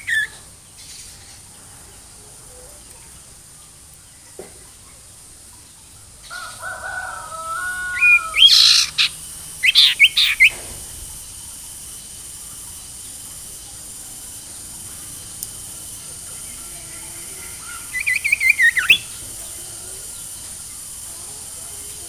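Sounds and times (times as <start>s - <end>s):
songbird singing: 0.0s - 22.0s.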